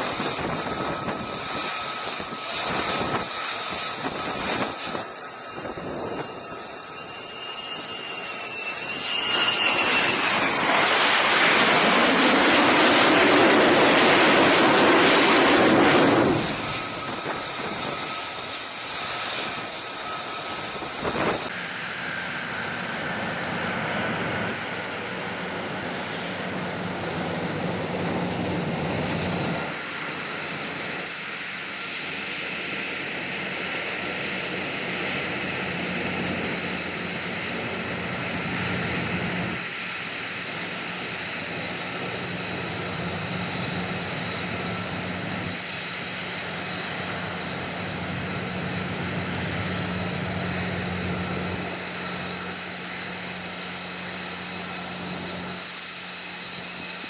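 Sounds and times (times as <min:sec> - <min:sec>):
aircraft engine noise: 0:00.0 - 0:57.0.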